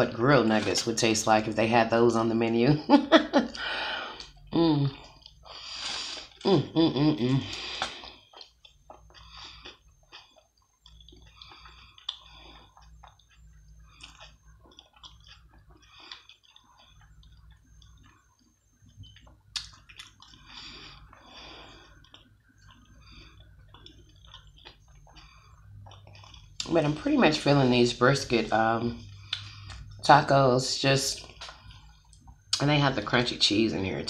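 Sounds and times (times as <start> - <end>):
person chewing food: 3.4 - 30.1, 31.1 - 32.6
wet mouth clicks and smacks: 7.5 - 9.3, 31.4 - 32.6.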